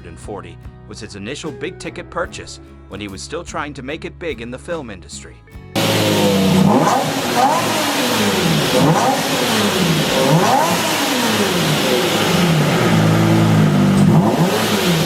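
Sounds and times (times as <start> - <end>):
car engine revving: 5.8 - 15.0.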